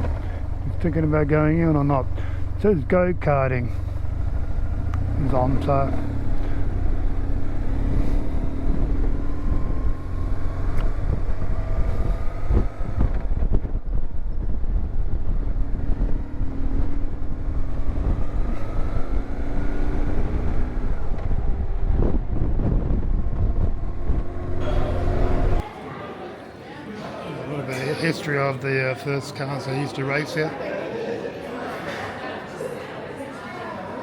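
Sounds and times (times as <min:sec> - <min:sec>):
motorcycle engine running: 0:00.0 - 0:25.6
wind noise on microphone: 0:06.2 - 0:24.6.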